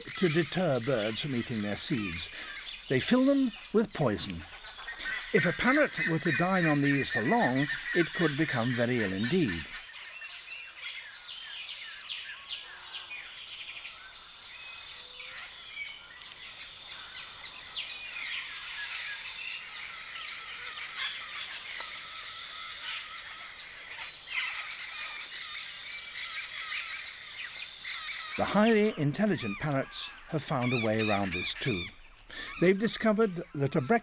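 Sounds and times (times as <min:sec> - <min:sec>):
parrots squawking: 0:00.0 - 0:09.8, 0:28.0 - 0:34.0.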